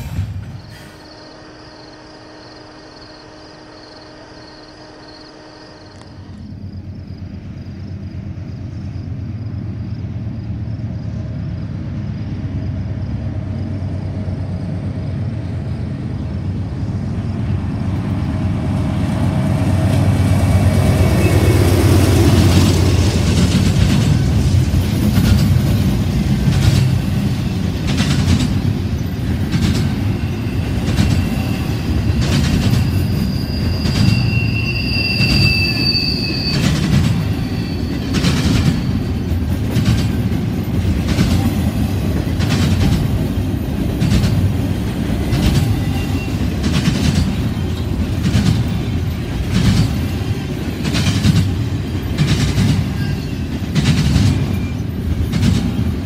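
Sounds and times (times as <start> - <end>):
diesel locomotive drone: 0.0 - 56.0
wheels clattering over rail joints: 18.0 - 35.9, 36.5 - 56.0
high wheel squeal: 19.6 - 23.3, 28.8 - 39.6, 45.1 - 56.0.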